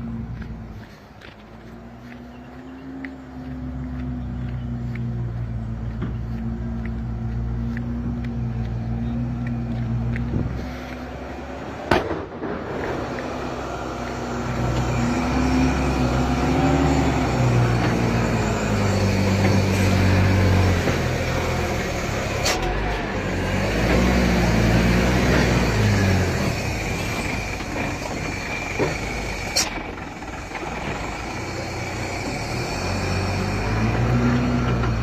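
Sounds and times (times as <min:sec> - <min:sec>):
diesel truck engine straining: 0:00.0 - 0:35.0
sharp crack: 0:11.8 - 0:14.3.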